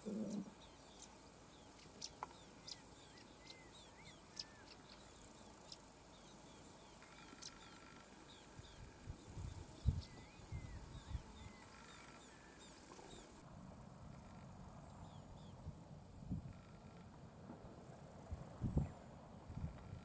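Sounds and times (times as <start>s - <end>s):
small birds chirping: 0.0s - 13.4s.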